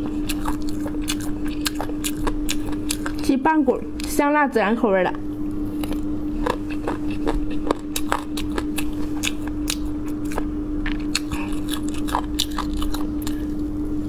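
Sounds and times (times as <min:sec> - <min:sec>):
person chewing meat: 0:00.0 - 0:03.3, 0:05.4 - 0:14.0
steady low hum: 0:00.0 - 0:14.0
cartilage crunching: 0:05.7 - 0:13.7.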